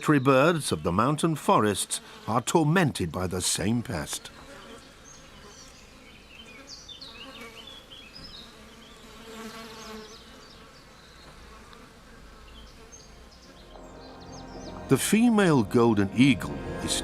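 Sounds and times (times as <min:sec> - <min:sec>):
flies buzzing: 0:01.8 - 0:02.4, 0:04.2 - 0:17.0.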